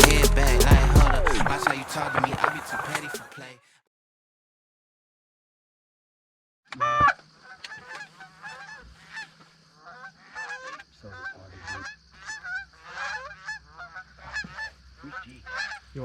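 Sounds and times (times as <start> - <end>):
geese honking: 0.0 - 3.5, 6.8 - 16.0.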